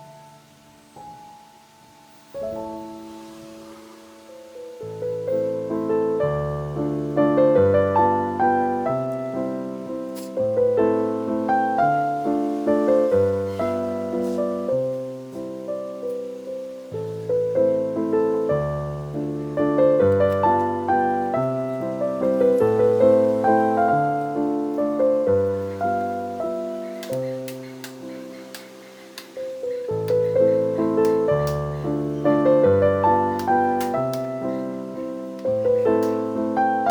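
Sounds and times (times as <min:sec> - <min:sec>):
gentle piano music: 0:00.0 - 0:36.9.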